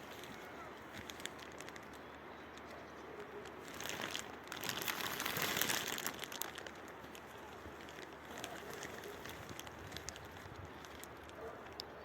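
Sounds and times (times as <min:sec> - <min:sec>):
close rustling and crackling: 0:00.0 - 0:12.0.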